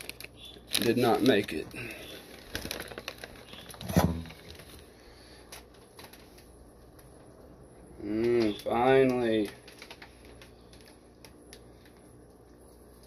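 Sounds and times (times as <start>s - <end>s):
plastic bags clicking and tapping: 0.0s - 4.8s, 5.5s - 7.3s, 8.1s - 12.0s.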